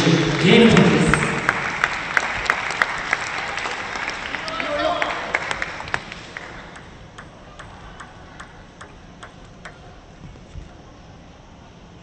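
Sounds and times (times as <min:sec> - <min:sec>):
table tennis ball bouncing: 0:06.0 - 0:10.4.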